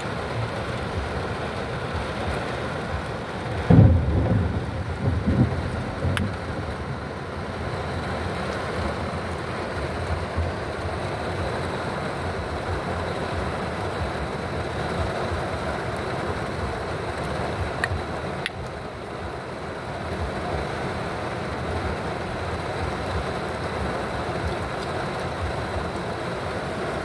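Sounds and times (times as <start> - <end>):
heavy rain on car roof: 0.0 - 27.0
low rumble: 3.6 - 10.9.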